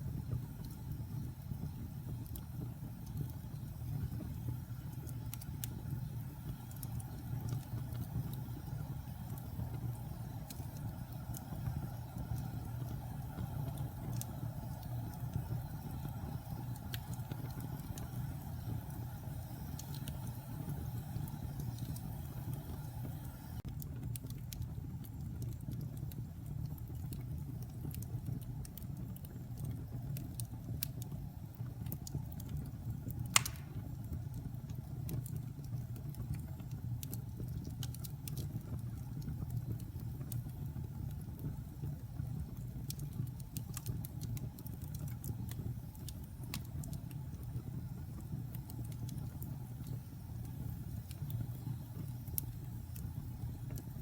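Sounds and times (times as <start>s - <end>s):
wood fire burning in fireplace: 0.0s - 54.0s
loud pop from fire: 33.3s - 33.9s.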